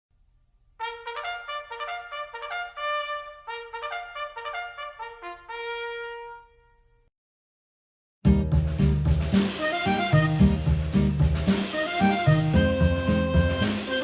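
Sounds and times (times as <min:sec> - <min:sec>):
brass melody: 0:00.8 - 0:07.1, 0:09.2 - 0:14.0.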